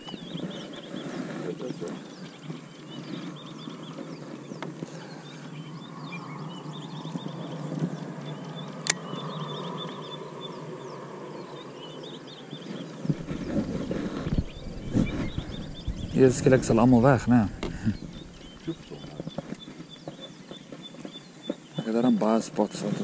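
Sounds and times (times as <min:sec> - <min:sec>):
birds chirping: 0:00.0 - 0:23.0
outdoor background noise: 0:00.0 - 0:23.0
sharp click: 0:08.8 - 0:09.0.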